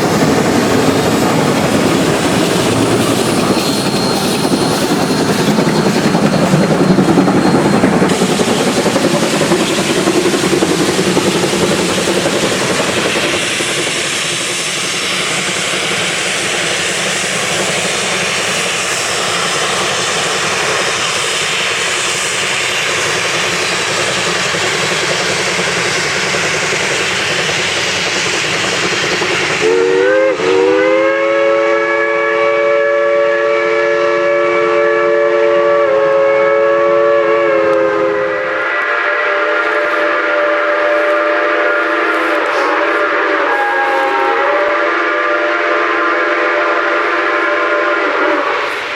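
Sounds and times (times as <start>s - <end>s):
steam locomotive rushing steam: 0.0s - 48.9s
multi-chime steam whistle: 0.9s - 11.6s, 29.5s - 48.9s.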